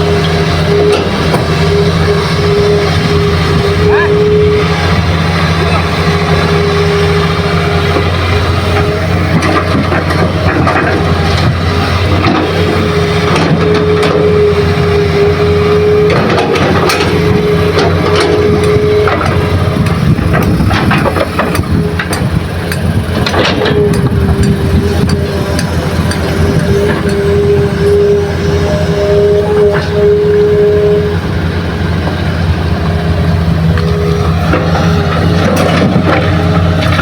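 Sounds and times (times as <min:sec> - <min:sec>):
heavy diesel engines running: 0:00.0 - 0:37.0
machine whine: 0:00.0 - 0:37.0
knocks and clatter: 0:07.9 - 0:14.3, 0:16.0 - 0:28.0, 0:33.8 - 0:37.0.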